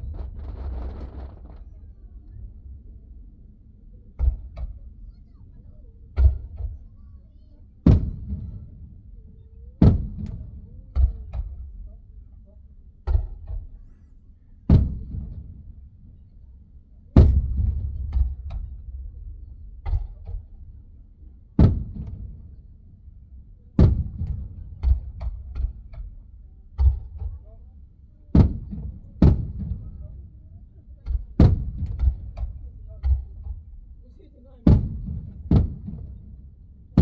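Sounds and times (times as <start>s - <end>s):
fireworks bursting: 0.0s - 1.8s
small fireworks cracks: 0.0s - 2.0s.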